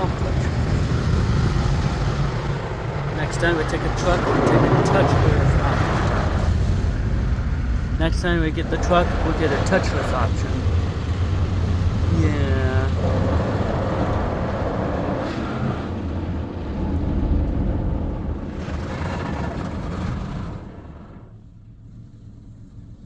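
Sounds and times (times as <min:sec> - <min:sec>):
car wash brushes scrubbing: 0:00.0 - 0:16.9
deep low hum: 0:00.0 - 0:23.0.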